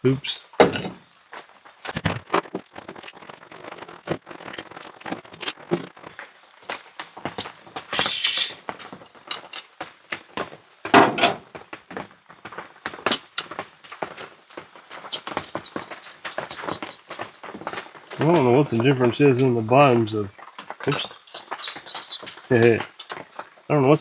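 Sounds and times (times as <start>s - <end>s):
cooking gear clicks and clattering: 1.8s - 6.0s, 7.9s - 9.7s, 14.8s - 23.4s
loud hiss: 7.9s - 8.7s.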